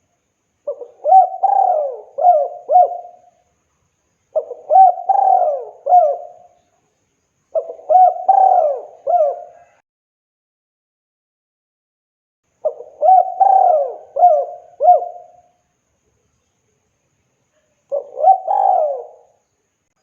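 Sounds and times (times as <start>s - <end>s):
dove cooing: 0.6s - 3.3s, 4.3s - 6.6s, 7.5s - 9.8s, 12.6s - 15.5s, 17.9s - 19.4s.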